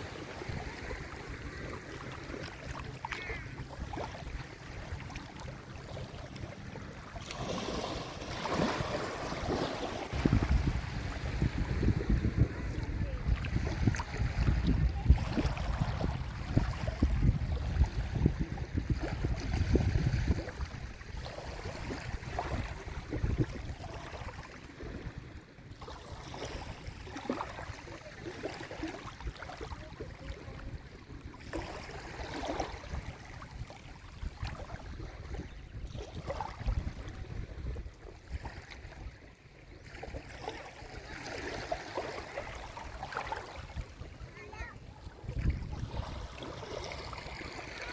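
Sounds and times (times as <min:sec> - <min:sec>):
waves lapping onto shore: 0:00.0 - 0:47.9
small splashes: 0:00.4 - 0:18.1, 0:39.8 - 0:47.9
wind on microphone: 0:06.6 - 0:27.8, 0:28.8 - 0:39.3, 0:40.0 - 0:47.9.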